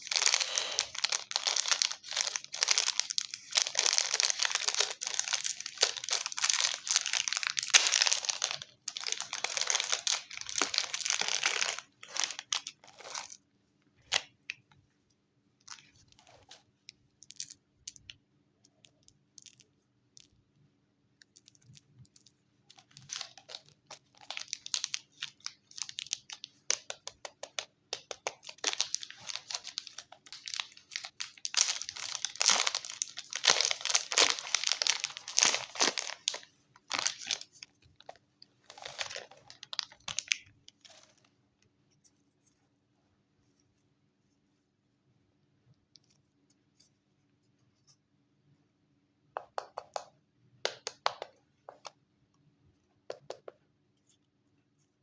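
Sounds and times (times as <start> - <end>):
wrapper crinkling and tearing: 0.0 - 13.4, 22.7 - 41.2.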